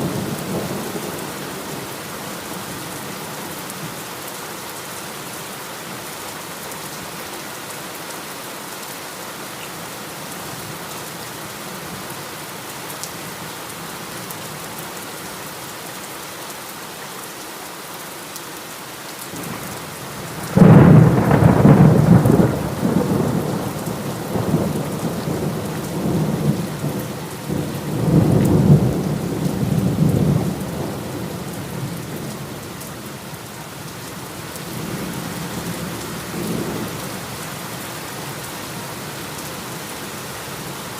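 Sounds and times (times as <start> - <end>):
heavy rain: 0.0 - 40.9
thunder crack and rumble: 20.5 - 31.0.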